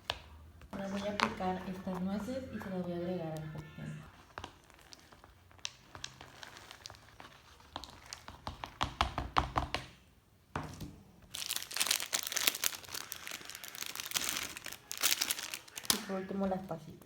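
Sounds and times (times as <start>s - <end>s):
dense crinkling crackle: 4.0s - 8.8s, 11.3s - 17.0s.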